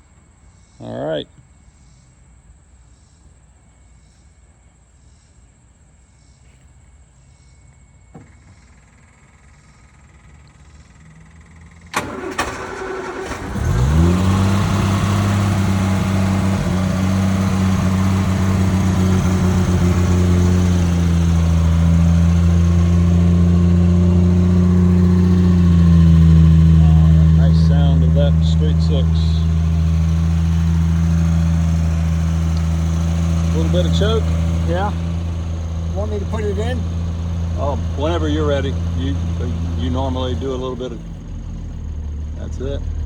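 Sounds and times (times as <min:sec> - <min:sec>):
car engine idling: 0:08.5 - 0:43.0
starter motor cranking: 0:11.6 - 0:41.1.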